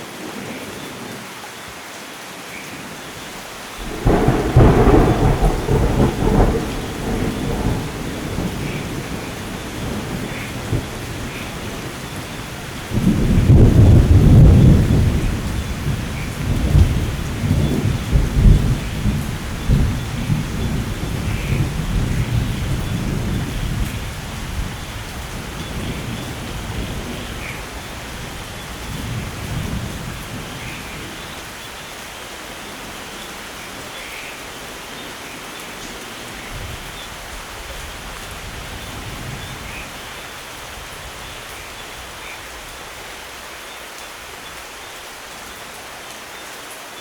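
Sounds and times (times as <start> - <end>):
heavy rain: 0.0 - 47.0
thunder rolling: 3.8 - 31.2.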